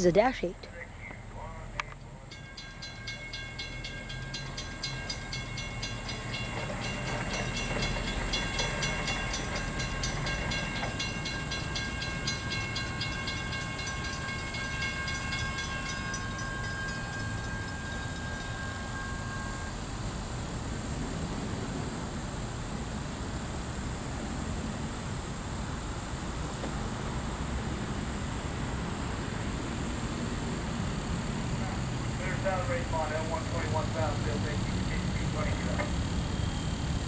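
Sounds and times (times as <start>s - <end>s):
freight train rumble: 0.0s - 37.0s
rapid repeating ringing: 2.2s - 20.2s.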